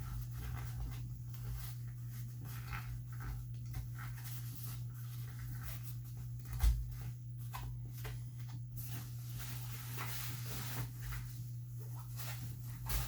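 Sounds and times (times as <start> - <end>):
rustling: 0.0 - 13.0
steady low hum: 0.0 - 13.0.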